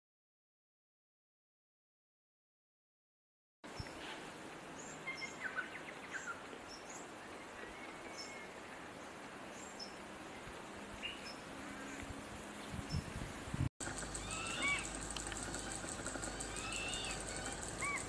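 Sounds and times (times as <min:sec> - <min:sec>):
steady outdoor hiss: 0:03.7 - 0:18.0
small birds chirping: 0:13.8 - 0:18.0.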